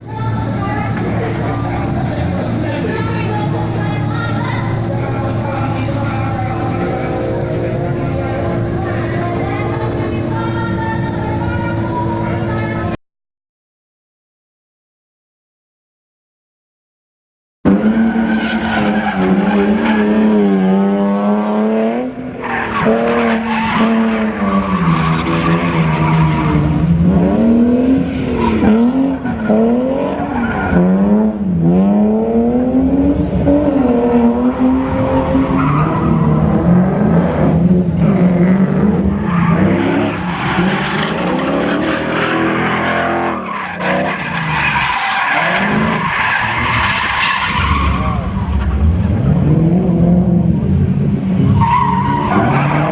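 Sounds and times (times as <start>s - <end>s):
tyres squealing and skidding: 17.7s - 21.4s, 22.2s - 52.9s
car engine revving hard: 17.7s - 52.9s.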